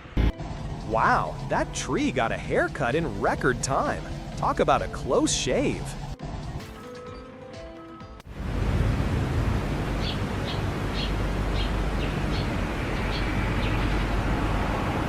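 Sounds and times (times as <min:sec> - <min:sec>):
loud steady rumble: 0:00.0 - 0:06.2, 0:08.3 - 0:15.0
bird chirping: 0:09.9 - 0:14.0.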